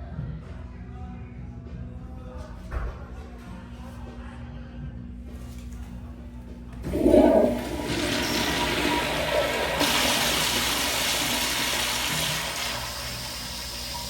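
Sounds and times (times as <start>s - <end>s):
toilet flushing: 6.8s - 14.0s.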